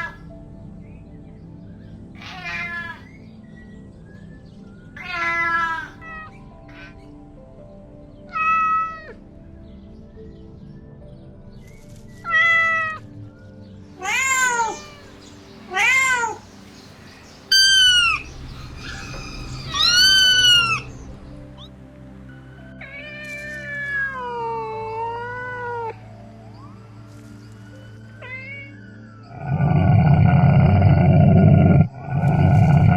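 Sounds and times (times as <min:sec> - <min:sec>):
kitten meowing: 0:02.2 - 0:03.0, 0:14.0 - 0:16.4, 0:17.5 - 0:20.9.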